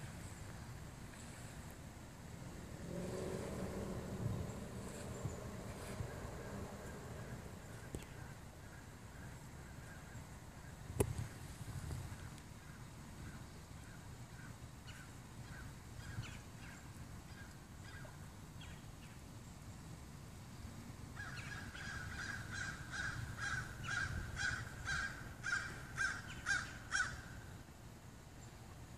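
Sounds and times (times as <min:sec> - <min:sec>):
bird calling: 0:03.3 - 0:10.3, 0:21.2 - 0:27.5.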